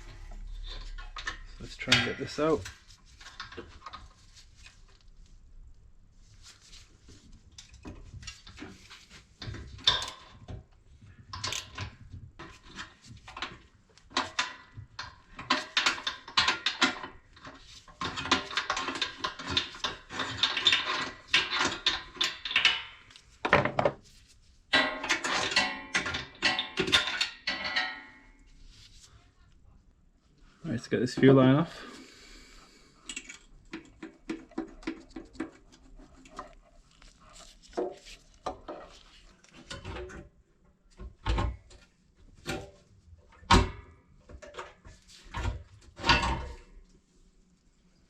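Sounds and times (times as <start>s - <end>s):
hand tools and metal parts clinking: 0.1s - 4.8s, 11.3s - 23.4s, 24.7s - 28.5s.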